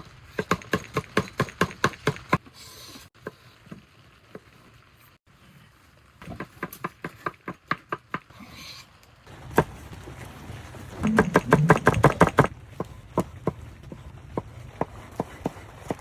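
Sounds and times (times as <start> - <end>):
sharp knocks: 11.1 - 12.5.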